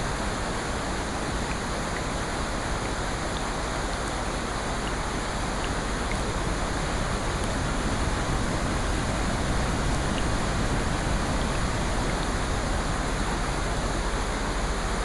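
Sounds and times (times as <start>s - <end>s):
rushing water: 0.0s - 15.0s
faint ticks: 1.3s - 3.6s, 4.8s - 6.3s.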